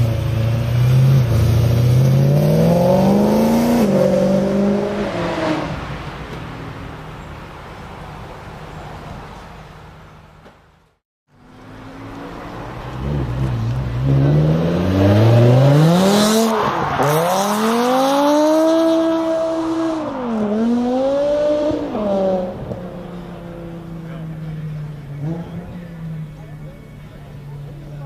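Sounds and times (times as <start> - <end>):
car engine revving: 0.0 - 6.0, 11.5 - 28.0.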